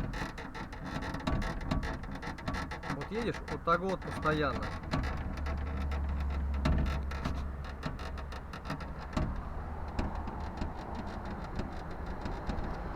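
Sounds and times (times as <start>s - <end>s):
car road rumble: 2.8s - 12.9s.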